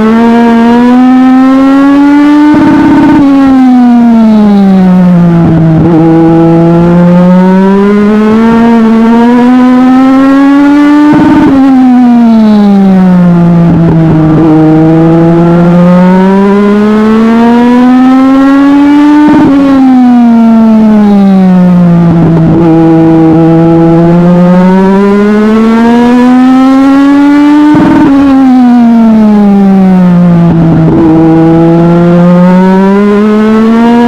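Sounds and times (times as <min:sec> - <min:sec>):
race car engine: 0:00.0 - 0:34.0.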